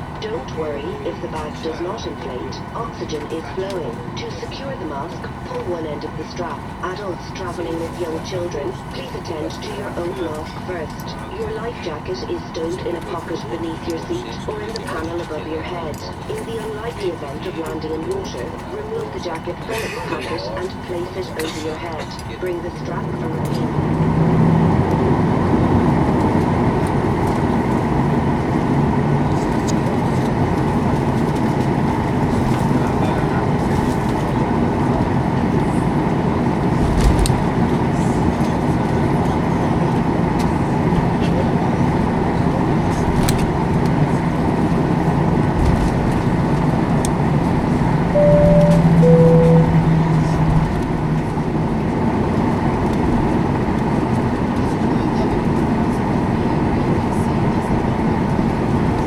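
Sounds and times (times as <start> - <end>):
aircraft cabin rumble: 42.6 - 54.6
two-tone cabin chime: 48.2 - 50.8.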